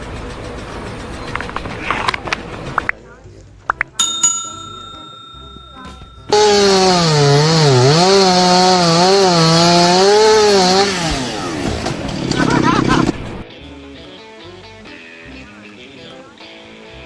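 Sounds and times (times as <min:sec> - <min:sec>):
steady ringing tone: 0:04.0 - 0:08.0.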